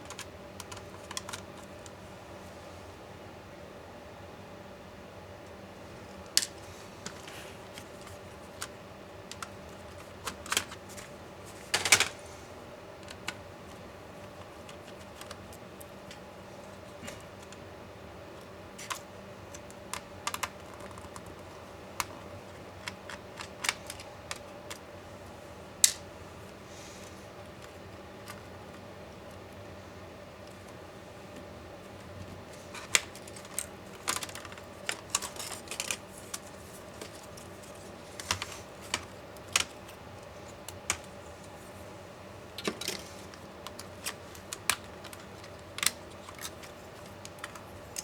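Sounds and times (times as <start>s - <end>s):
laptop parts clicking: 0.0s - 2.0s, 6.2s - 11.1s, 18.8s - 24.9s, 32.7s - 41.1s, 42.6s - 48.0s.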